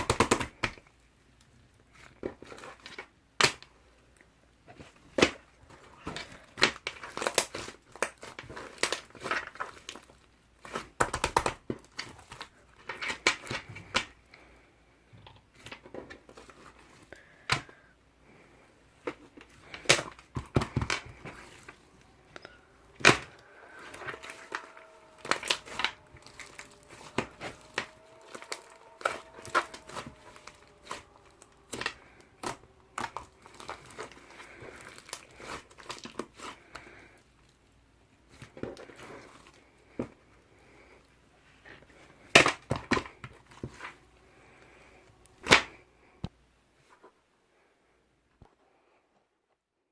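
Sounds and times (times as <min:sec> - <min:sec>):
slime squeezed by hand: 0:21.1 - 0:36.6.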